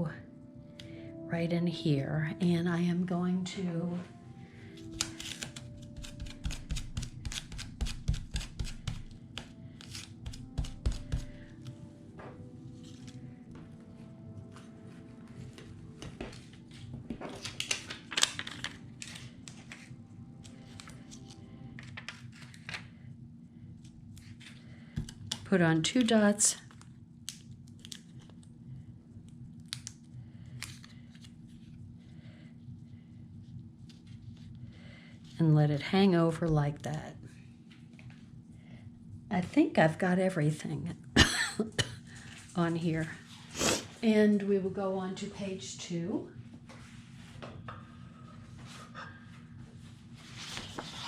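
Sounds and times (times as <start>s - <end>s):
faint background music: 0.0s - 51.0s
steady low hum: 0.0s - 51.0s
paper rustling and tapping: 4.9s - 11.5s, 15.6s - 19.9s, 21.8s - 22.8s.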